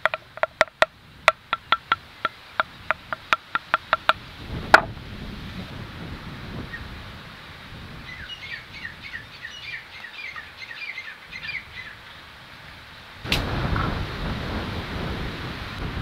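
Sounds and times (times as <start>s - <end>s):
small bird chirping: 8.1s - 12.0s.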